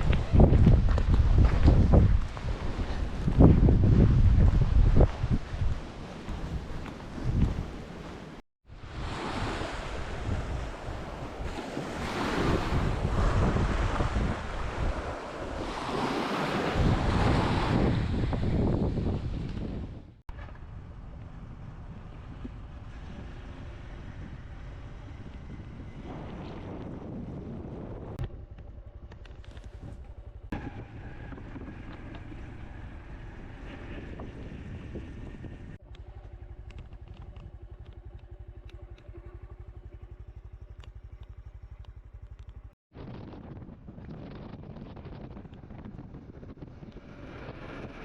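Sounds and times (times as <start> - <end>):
motorcycle engine running: 28.2 - 33.6, 34.2 - 42.8.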